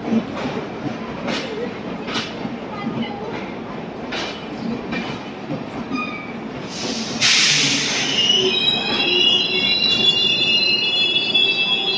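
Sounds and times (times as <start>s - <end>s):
train coaches rolling: 0.0s - 11.9s
loud hiss: 6.7s - 8.3s.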